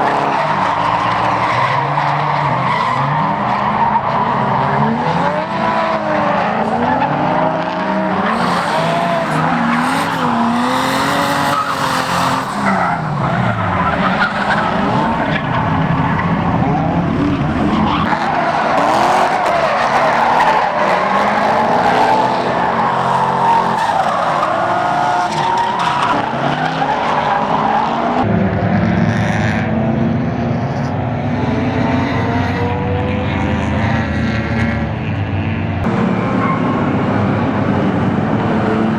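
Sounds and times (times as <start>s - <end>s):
car engines revving: 0.0s - 38.9s
race cars running on track: 0.0s - 38.9s
tyres squealing: 8.1s - 18.1s, 35.9s - 38.7s.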